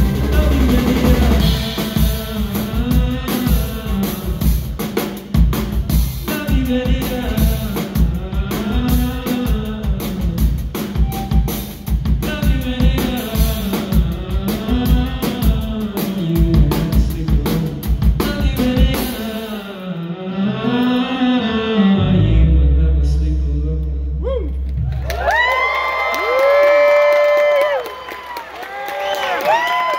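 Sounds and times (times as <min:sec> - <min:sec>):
live rock band music: 0:00.0 - 0:19.6.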